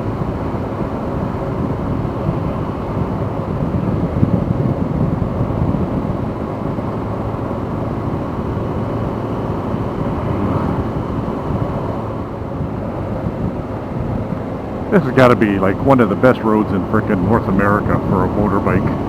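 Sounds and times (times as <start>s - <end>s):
motorcycle engine cruising: 0.0s - 19.0s
wind and road noise: 0.0s - 19.0s.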